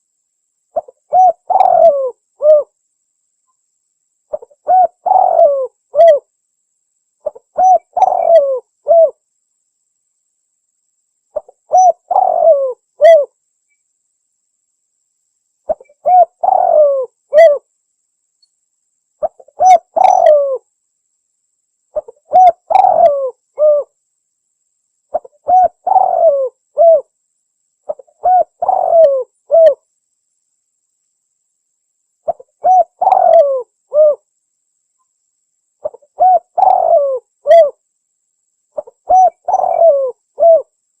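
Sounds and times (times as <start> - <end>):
dove cooing: 0.8 - 2.7, 4.3 - 6.3, 7.2 - 9.2, 11.4 - 13.3, 15.7 - 17.6, 19.2 - 20.6, 22.0 - 24.0, 25.1 - 27.1, 27.9 - 29.8, 32.3 - 34.3, 35.8 - 37.8, 38.8 - 40.7.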